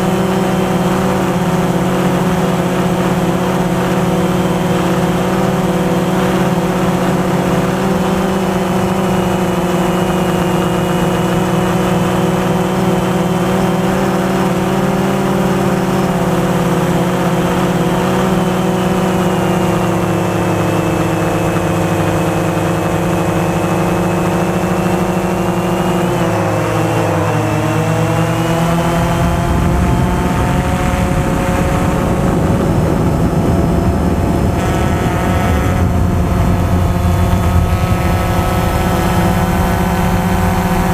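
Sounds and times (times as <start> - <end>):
drone motors whining: 0.0 - 40.9
wind rushing: 28.8 - 40.9.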